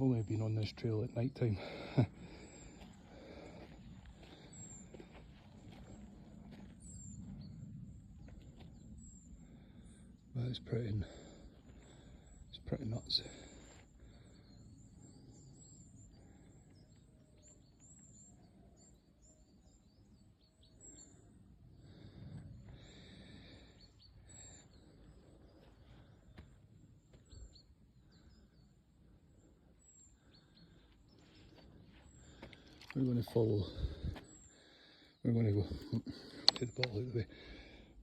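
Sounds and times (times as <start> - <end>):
birds chirping: 0.0 - 38.0
outdoor background noise: 0.0 - 38.0.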